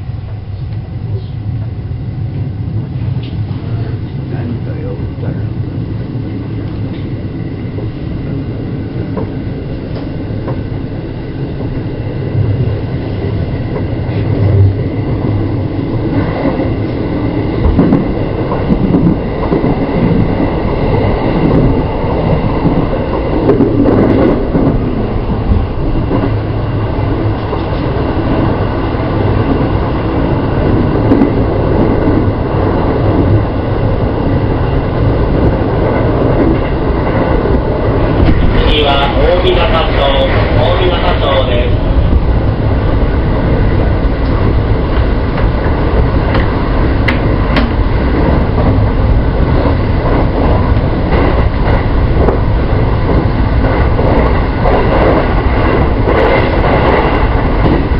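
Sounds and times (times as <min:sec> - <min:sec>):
train wheels rumbling on rail: 0:00.0 - 0:57.9
train wheel clicks: 0:09.1 - 0:10.6, 0:44.1 - 0:57.9.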